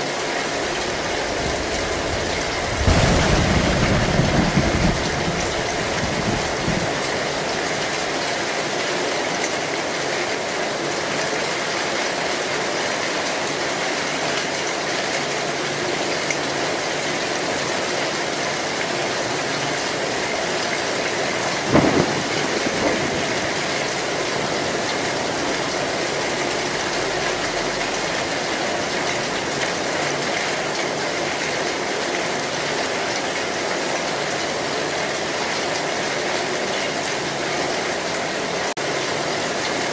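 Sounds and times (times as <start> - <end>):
heavy rain on a metal roof: 0.0 - 39.9
sudden loud crack: 2.5 - 6.6.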